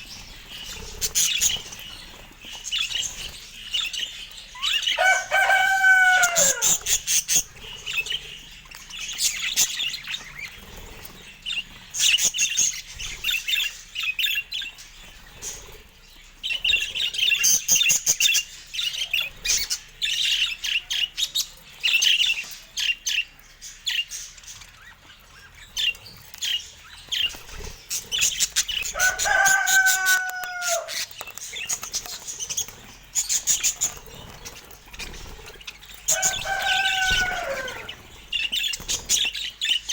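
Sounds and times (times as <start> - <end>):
budgerigars chirping and warbling: 0.0 - 39.9
lower falling bird call: 36.1 - 37.9.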